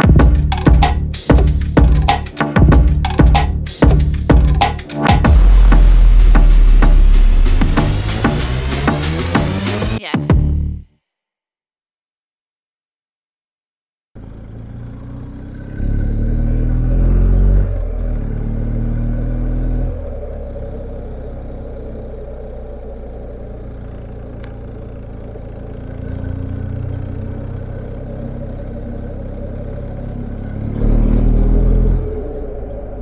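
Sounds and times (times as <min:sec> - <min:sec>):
motorcycle engine revving: 0:14.2 - 0:33.0
road and wind noise: 0:14.7 - 0:33.0.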